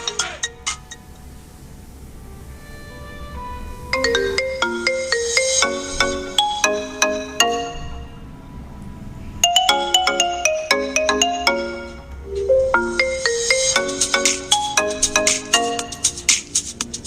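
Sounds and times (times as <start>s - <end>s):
bright marimba-like melody: 0.0s - 1.1s, 3.9s - 8.2s, 9.4s - 16.6s.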